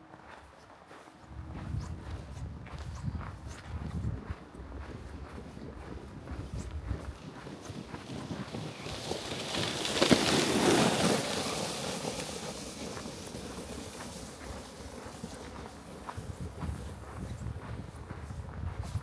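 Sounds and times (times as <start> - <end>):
wind gust buffeting microphone: 5.0 - 11.6, 12.2 - 19.0.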